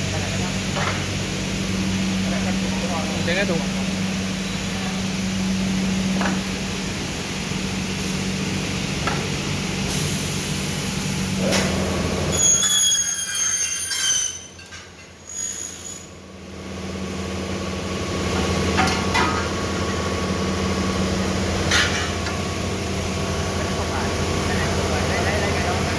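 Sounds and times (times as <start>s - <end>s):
blade squealing while cutting: 12.3s - 14.6s, 15.2s - 16.2s.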